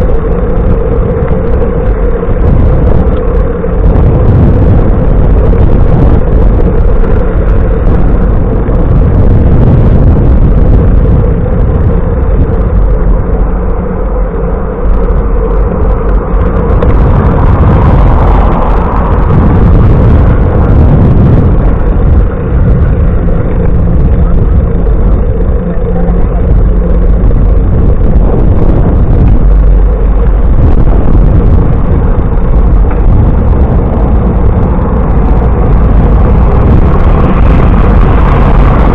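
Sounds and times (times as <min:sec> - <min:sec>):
road noise: 0:00.0 - 0:38.9
wind rushing over microphone: 0:00.0 - 0:38.9.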